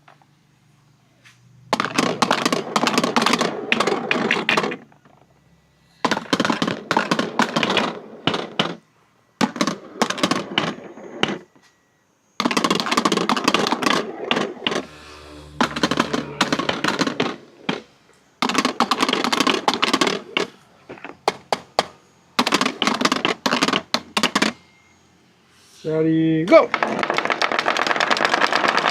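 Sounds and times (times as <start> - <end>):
marbles rattling down track: 26.7 - 28.9.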